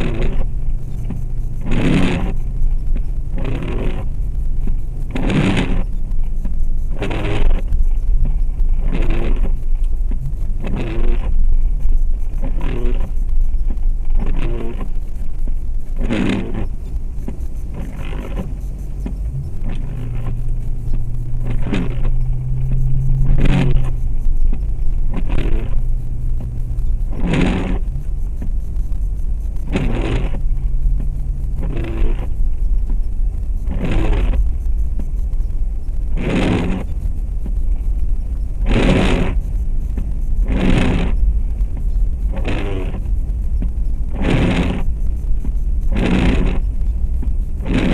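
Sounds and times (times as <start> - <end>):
engine and road rumble: 0.0 - 47.9.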